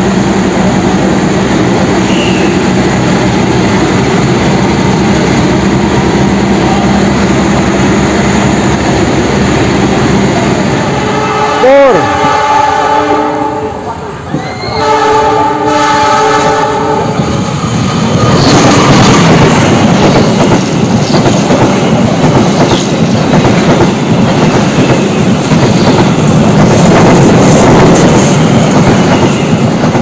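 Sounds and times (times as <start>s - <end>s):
train passing on rails: 0.0s - 30.0s
locomotive horn blast: 10.9s - 13.9s, 14.7s - 17.2s.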